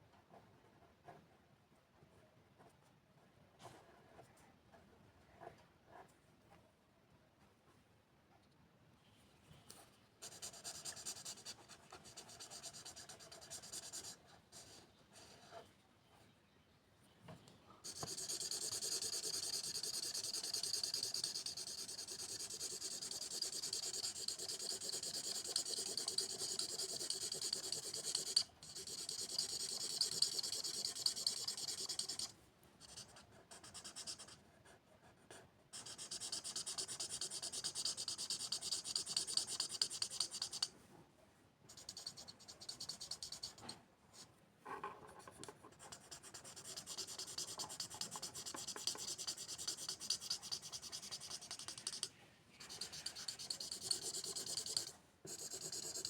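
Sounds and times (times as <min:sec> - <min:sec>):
pen scratching on paper: 0:10.2 - 0:15.6, 0:17.8 - 0:40.7, 0:41.7 - 0:43.7, 0:44.7 - 0:56.0.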